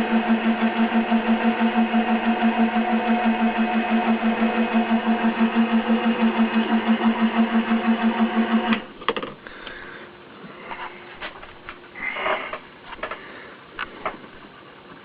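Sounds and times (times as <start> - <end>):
milling machine humming: 0.0 - 15.0
sharp clicks and knocks: 8.7 - 9.4.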